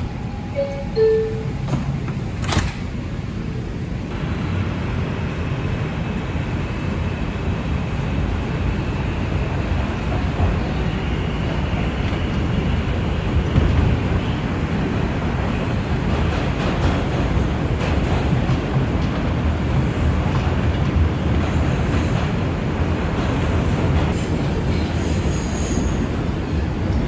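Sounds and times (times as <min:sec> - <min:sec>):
subway doors thumping shut: 0:00.0 - 0:03.5, 0:10.4 - 0:27.0
train running noise: 0:00.0 - 0:27.0
two-tone door chime: 0:00.1 - 0:01.9.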